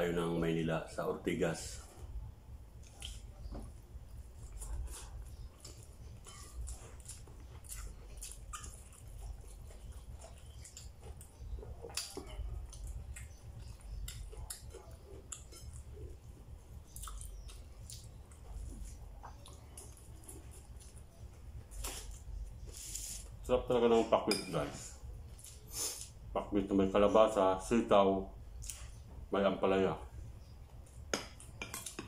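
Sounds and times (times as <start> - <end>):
low hum: 0.0 - 32.0
person chewing: 2.8 - 23.3, 25.2 - 26.2.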